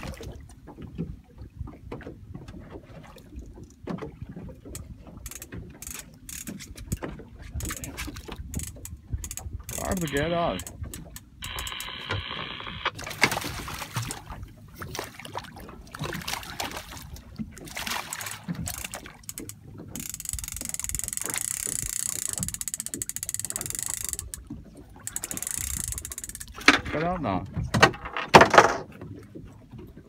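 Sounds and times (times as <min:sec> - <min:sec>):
splashing water: 0:02.8 - 0:26.6.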